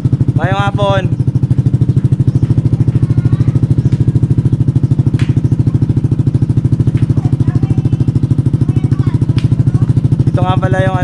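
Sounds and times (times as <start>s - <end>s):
motorcycle idling: 0.0s - 11.0s.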